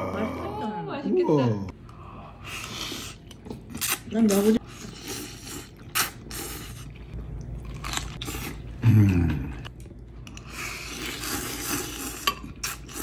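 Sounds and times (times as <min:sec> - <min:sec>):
low voiced hum: 0:08.3 - 0:11.2.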